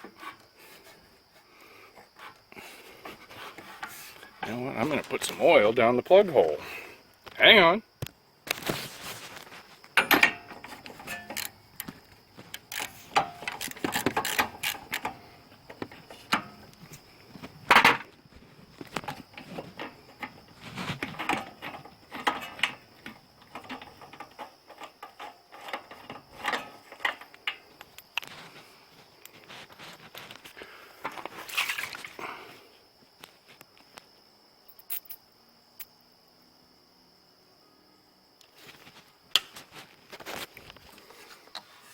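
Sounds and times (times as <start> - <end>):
faint high whine: 0.0 - 41.9
hand tools clattering on metal: 10.0 - 11.6, 12.6 - 15.2.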